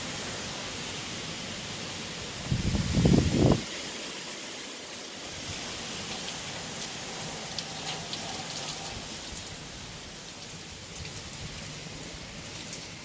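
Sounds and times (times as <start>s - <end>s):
heavy rain hissing on roof: 0.0s - 13.0s.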